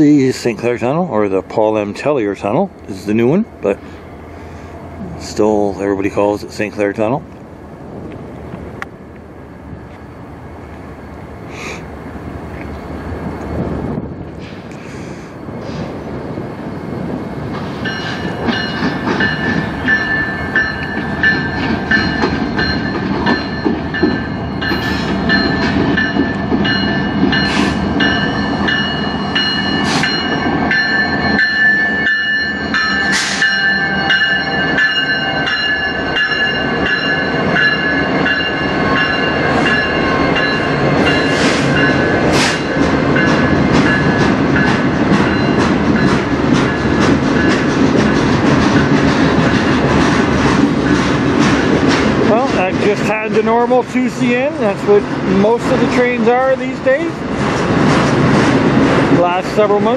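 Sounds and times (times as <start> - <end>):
diesel locomotives rumbling: 0.0 - 59.9
train wheels clattering: 17.4 - 59.9
high ringing tones: 17.8 - 46.8.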